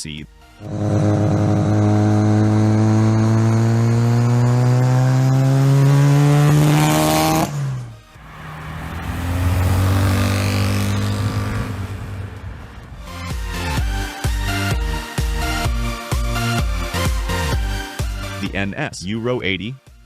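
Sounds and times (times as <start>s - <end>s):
rotary engine revving: 0.6s - 14.0s
music with a beat: 13.1s - 18.4s.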